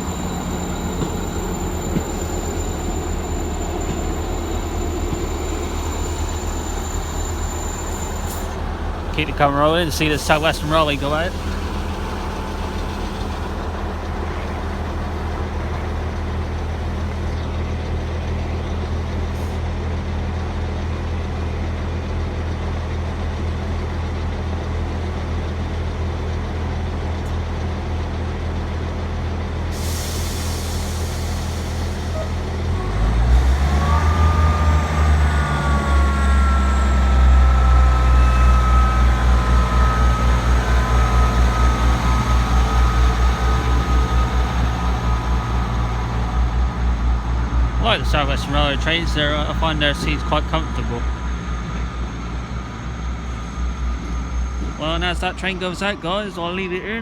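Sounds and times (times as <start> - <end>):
train engine idling: 0.0 - 57.0
train engines powering up: 0.0 - 57.0.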